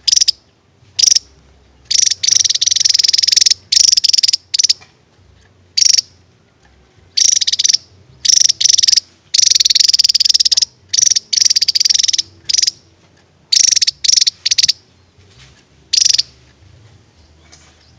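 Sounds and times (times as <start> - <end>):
bird singing rattling trills: 0.0 - 4.8, 5.8 - 6.2, 7.1 - 12.9, 13.5 - 15.2, 15.9 - 16.4.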